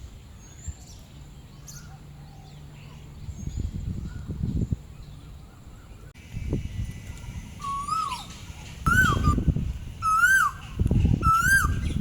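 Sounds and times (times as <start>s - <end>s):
bird calling: 4.9s - 12.0s.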